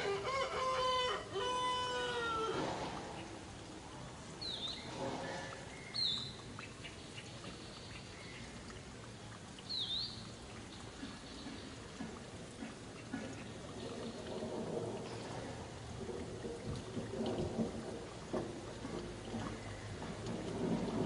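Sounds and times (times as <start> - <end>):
rooster crowing: 0.0 - 2.6
outdoor background noise: 0.0 - 21.0.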